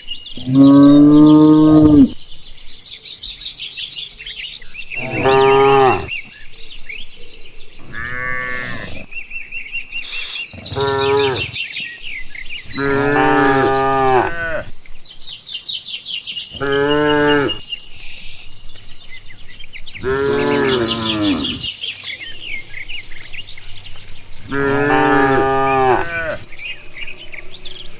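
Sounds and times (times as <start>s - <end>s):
cows mooing: 0.4s - 2.2s, 5.0s - 6.1s, 7.8s - 9.1s, 10.5s - 11.6s, 12.7s - 14.8s, 16.6s - 17.6s, 20.0s - 21.7s, 24.1s - 27.9s.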